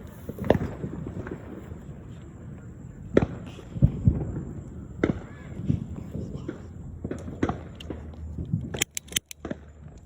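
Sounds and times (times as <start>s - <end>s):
low booms: 3.0s - 8.8s
sharp cracks: 6.4s - 10.0s.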